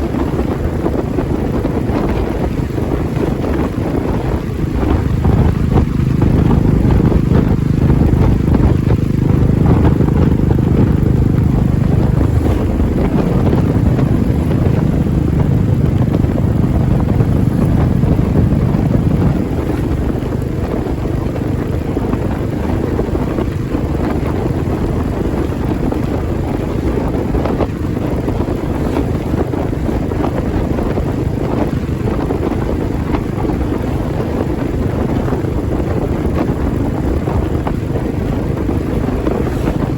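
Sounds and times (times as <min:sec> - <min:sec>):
wind noise on microphone: 0:00.0 - 0:39.9
motorcycle engine thumping: 0:04.4 - 0:22.4.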